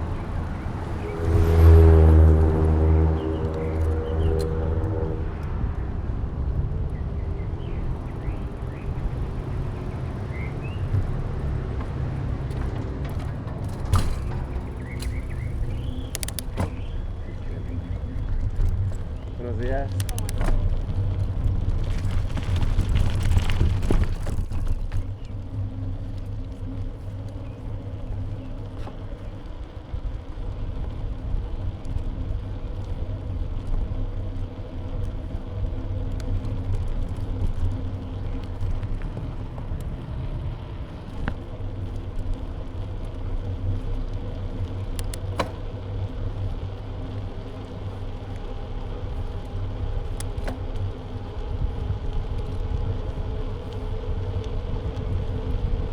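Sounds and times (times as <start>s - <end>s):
bicycle road rumble: 0.0s - 55.9s
sharp clicks: 14.1s - 16.8s, 19.9s - 20.7s
wind on microphone: 20.0s - 25.2s, 49.3s - 55.9s.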